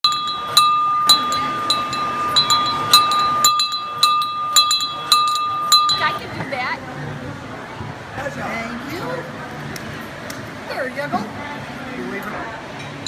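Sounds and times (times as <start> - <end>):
train bell ringing: 0.0 - 6.2.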